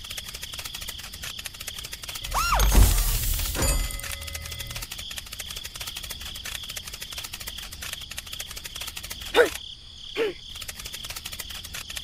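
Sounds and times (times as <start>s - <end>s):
insect chirring: 0.0s - 12.0s
loud squeaky cries: 2.3s - 2.8s.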